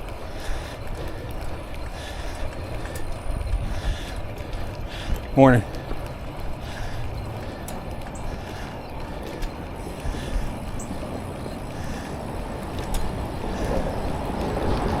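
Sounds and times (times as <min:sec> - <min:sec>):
bicycle rolling: 0:00.0 - 0:15.0
rushing wind: 0:00.0 - 0:15.0.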